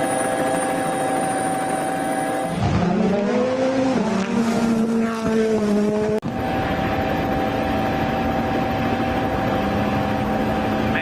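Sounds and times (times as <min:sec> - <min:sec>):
rally car engine running: 0:00.0 - 0:11.0.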